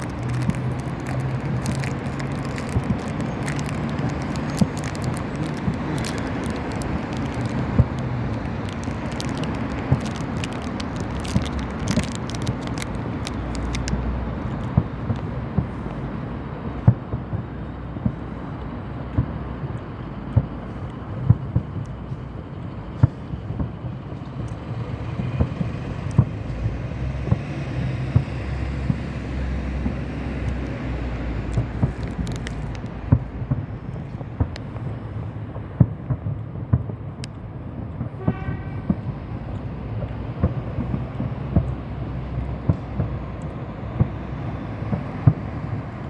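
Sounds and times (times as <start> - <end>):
sharp pops: 0.0 - 16.0, 29.8 - 34.9
road traffic rumble: 0.0 - 46.0.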